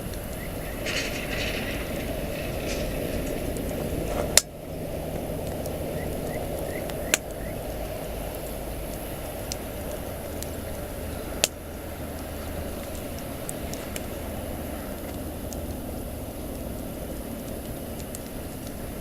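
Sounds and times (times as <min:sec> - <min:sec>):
campfire crackling and popping: 0:00.0 - 0:19.0
fire low rumble: 0:00.0 - 0:19.0.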